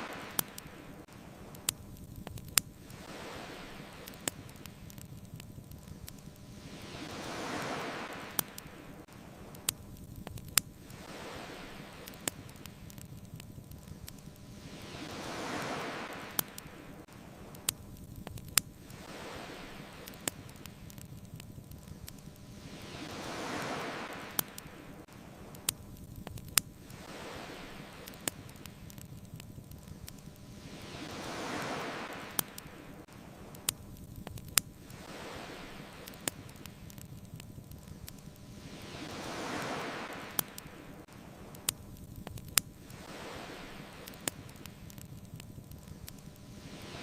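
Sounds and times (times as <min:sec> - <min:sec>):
ocean waves washing: 0:00.0 - 0:47.0
wood fire crackling: 0:00.0 - 0:47.0.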